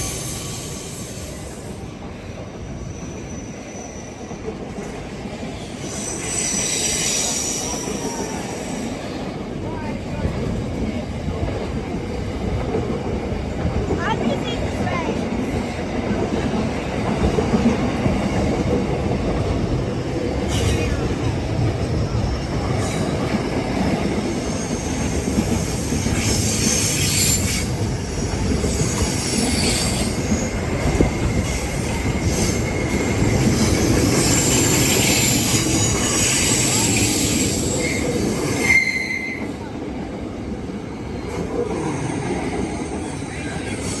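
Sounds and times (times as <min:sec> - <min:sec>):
train wagons rumbling on rails: 0:00.0 - 0:44.0
high-pitched wheel squeal: 0:02.7 - 0:04.4, 0:05.7 - 0:08.9, 0:24.4 - 0:30.5, 0:33.6 - 0:39.5.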